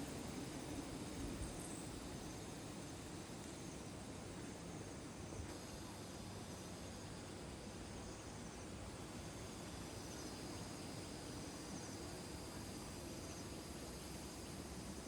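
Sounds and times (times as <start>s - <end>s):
insect chirps: 7.9s - 15.0s.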